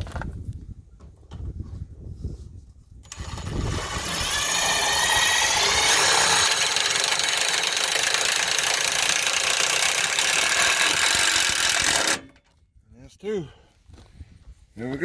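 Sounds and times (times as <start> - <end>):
power drill driving screw into metal: 3.1 - 12.5.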